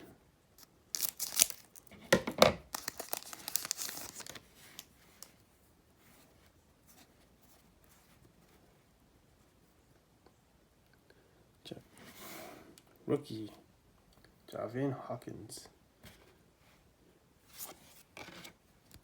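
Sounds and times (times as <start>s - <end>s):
cards rustling: 0.6s - 1.9s, 2.7s - 5.4s
foil wrapper tearing and crinkling: 0.6s - 1.9s, 2.6s - 4.9s.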